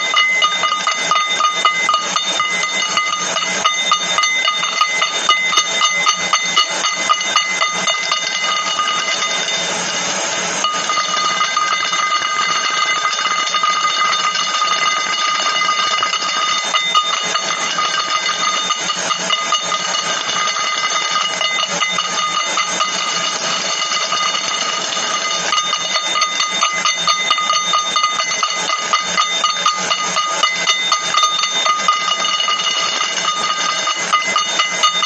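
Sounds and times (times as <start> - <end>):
high ringing tone: 0.0 - 35.0.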